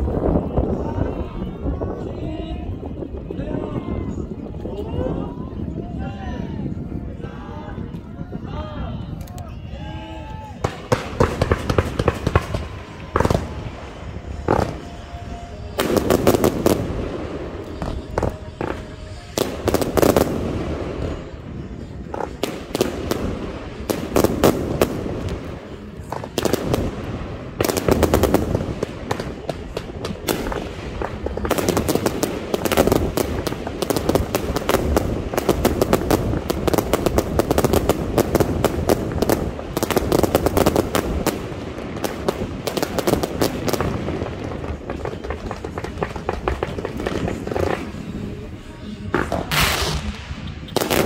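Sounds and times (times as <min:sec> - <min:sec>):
fireworks bursting: 0:10.6 - 0:51.0.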